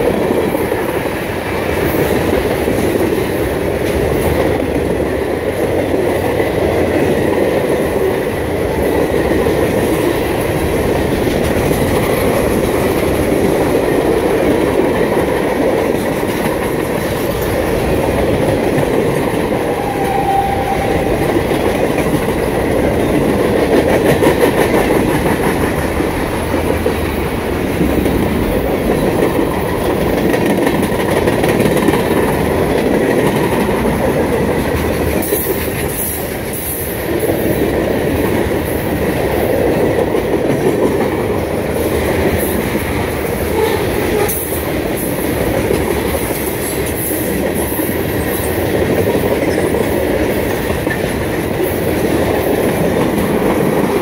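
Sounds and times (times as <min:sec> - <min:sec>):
freight train wheels clattering: 0:00.0 - 0:54.0
wheels squealing: 0:19.6 - 0:21.7.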